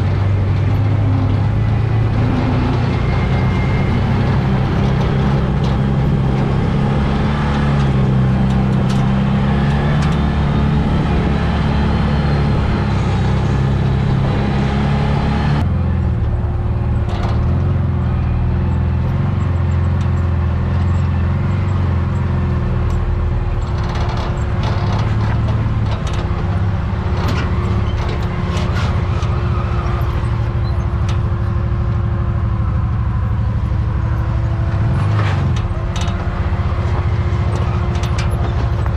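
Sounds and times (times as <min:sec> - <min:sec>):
utility vehicle engine running: 0:00.0 - 0:38.9
knocks and rattles: 0:23.6 - 0:31.4, 0:34.8 - 0:38.9.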